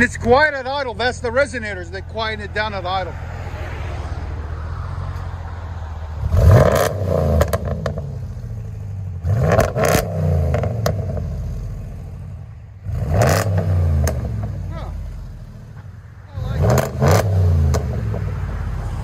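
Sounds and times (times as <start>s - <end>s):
truck engine idling and revving: 0.0s - 19.0s
exhaust cracks: 4.3s - 19.0s.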